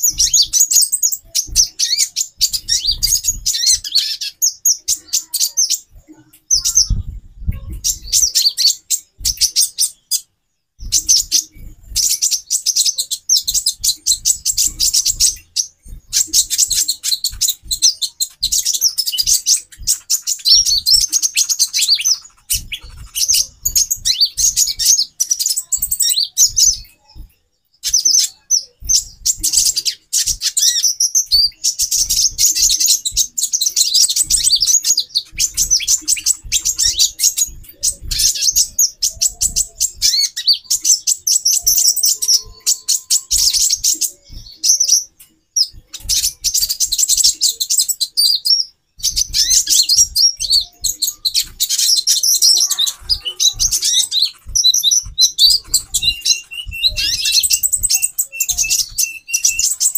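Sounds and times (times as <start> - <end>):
sunbirds twittering: 0.0 - 59.9
soft low thumps: 5.8 - 8.4, 10.8 - 12.4, 13.4 - 21.3, 28.8 - 30.6, 31.2 - 42.8, 43.4 - 47.4, 49.0 - 59.9.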